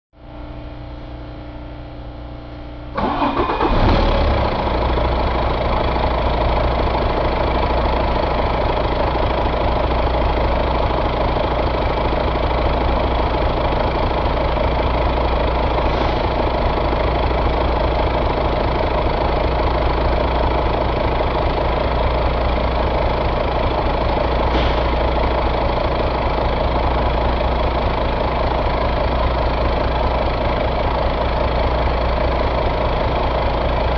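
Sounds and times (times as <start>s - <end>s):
diesel engine idling: 0.2s - 33.9s
diesel engine starter cranking: 3.0s - 8.6s.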